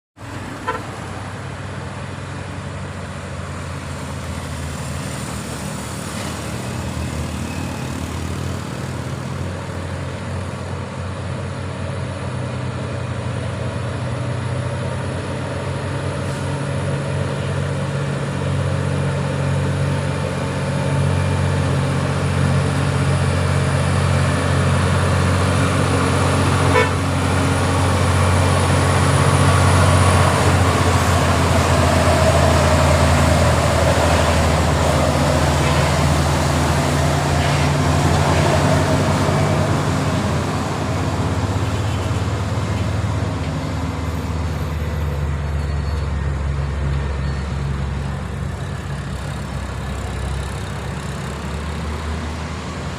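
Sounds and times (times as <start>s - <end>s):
truck engine running: 0.2s - 52.9s
truck horn toot: 0.4s - 1.2s, 26.5s - 27.5s, 41.6s - 42.3s.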